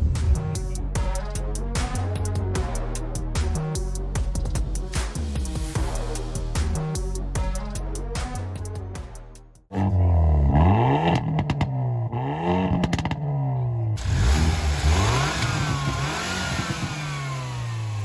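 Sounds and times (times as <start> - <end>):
car engine revving: 9.7 - 18.0
exhaust crackles and pops: 10.5 - 18.0.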